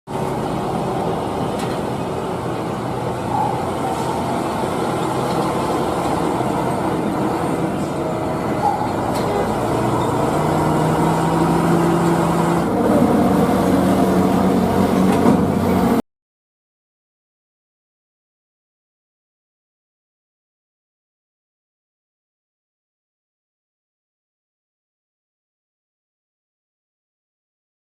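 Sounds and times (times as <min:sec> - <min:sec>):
heavy vehicle engine running: 0:00.1 - 0:16.0
road noise: 0:00.1 - 0:16.0.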